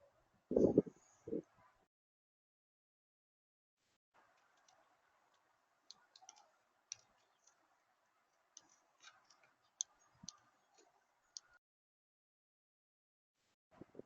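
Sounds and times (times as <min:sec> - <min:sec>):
faint irregular ticks and clicks: 0:04.2 - 0:11.6.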